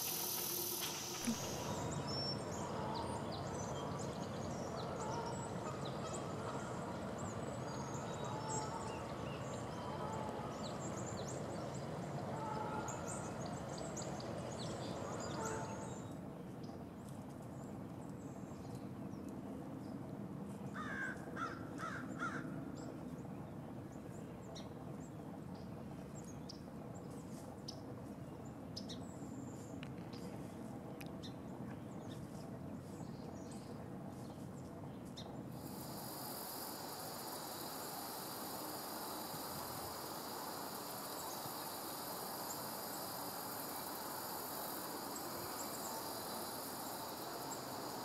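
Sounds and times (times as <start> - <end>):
bird calling: 0.0 - 2.0
rustles of dry leaves: 0.0 - 2.7, 32.1 - 48.0
high-pitched hiss: 0.0 - 2.8, 35.5 - 48.0.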